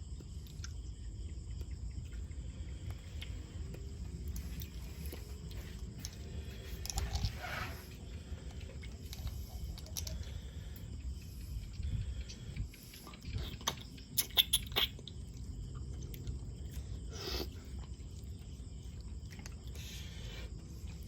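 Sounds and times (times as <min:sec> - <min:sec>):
person chewing: 0:13.0 - 0:19.9.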